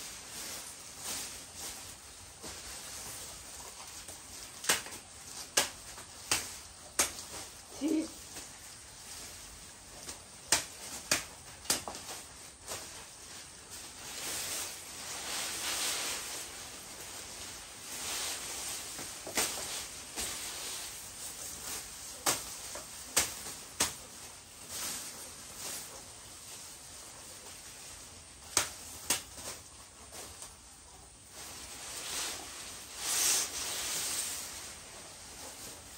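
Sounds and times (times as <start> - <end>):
rustling hiss: 0.0 - 35.9
sharp knocks and snaps: 4.6 - 7.4, 10.0 - 12.2, 22.2 - 24.0, 28.5 - 29.5.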